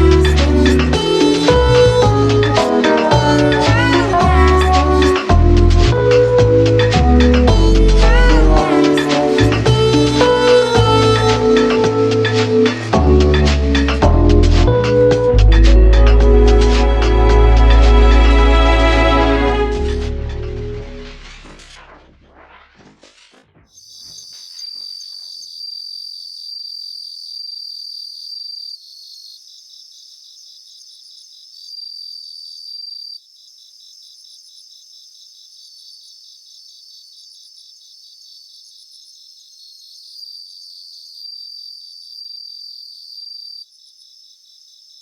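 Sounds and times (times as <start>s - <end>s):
crickets pulsing chirp: 23.6s - 45.0s
crickets trilling: 23.6s - 45.0s.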